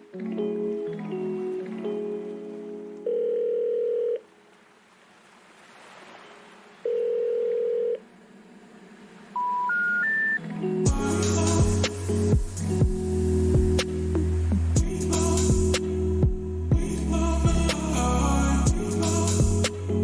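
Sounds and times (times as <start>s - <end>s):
music: 0.0s - 3.2s, 10.3s - 20.0s
steady telephone tones: 3.0s - 4.3s, 6.8s - 8.0s, 9.4s - 10.4s
rising short beeps: 9.4s - 10.4s.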